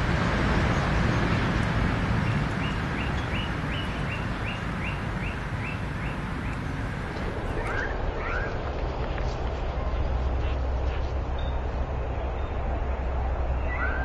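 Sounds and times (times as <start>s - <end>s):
outdoor background rumble: 0.0s - 14.0s
bird calling rising notes: 13.6s - 14.0s.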